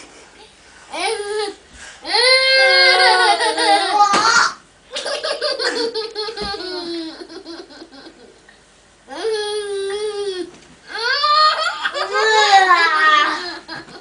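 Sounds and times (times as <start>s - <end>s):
young children laughing: 2.4s - 8.4s, 10.9s - 14.0s.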